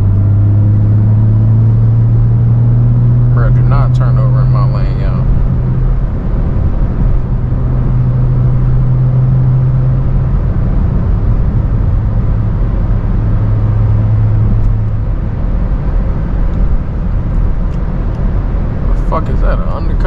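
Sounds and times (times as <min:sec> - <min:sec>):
car exhaust droning: 0:00.0 - 0:20.0.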